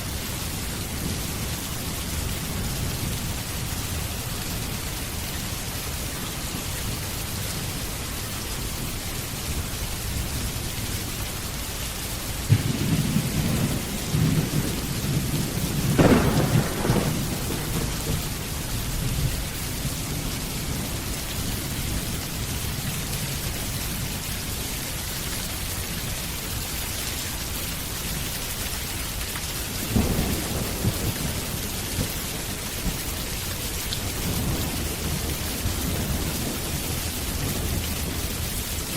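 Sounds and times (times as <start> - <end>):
steady rain: 0.0 - 38.9
rolling thunder: 12.4 - 21.2, 29.8 - 33.2, 34.0 - 38.9.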